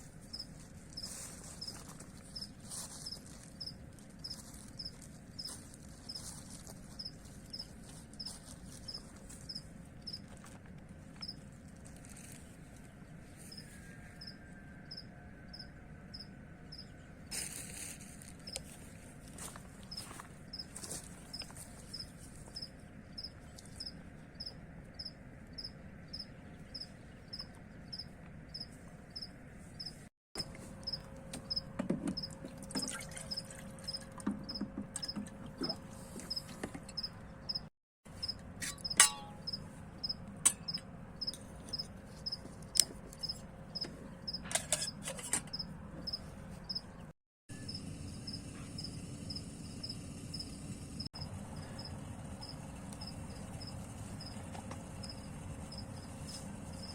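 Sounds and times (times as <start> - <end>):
low background hum: 0.0 - 56.9
cricket chirping: 7.0 - 7.6, 8.9 - 10.2, 14.2 - 16.9, 21.3 - 32.3, 38.2 - 43.4, 45.5 - 46.8, 47.6 - 54.4, 55.0 - 56.9.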